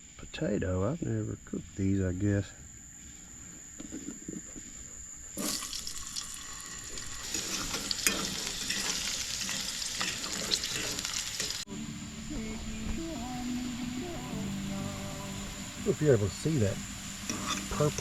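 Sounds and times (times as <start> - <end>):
potatoes sizzling in a pan: 5.4 - 18.0.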